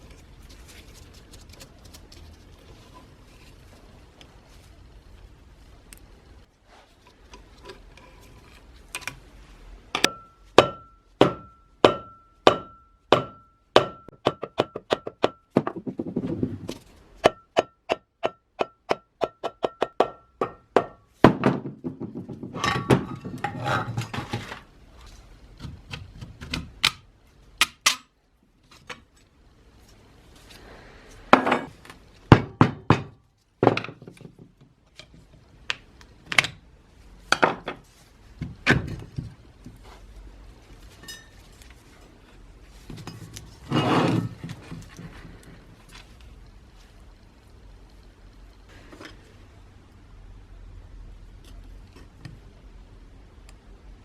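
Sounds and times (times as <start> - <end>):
hammer striking metal: 10.0 - 15.5
scraping and rattling: 21.6 - 25.8, 40.8 - 46.2.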